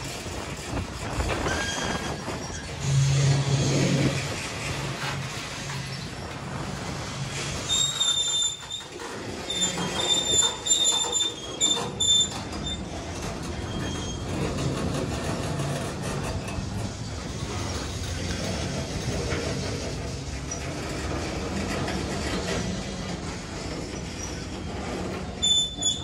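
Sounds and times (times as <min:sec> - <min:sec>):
freight cars rolling on rails: 0:00.0 - 0:26.0
high-pitched wheel squeal: 0:00.7 - 0:06.4, 0:07.4 - 0:14.8, 0:23.6 - 0:26.0.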